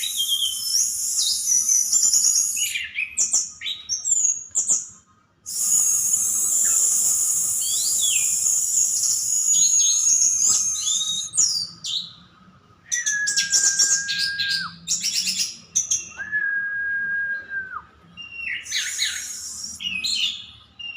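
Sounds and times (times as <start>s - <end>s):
long level bird whistles: 0.0s - 4.7s, 5.5s - 12.2s, 12.9s - 20.9s
bird warbling song: 5.5s - 12.3s, 12.9s - 16.2s.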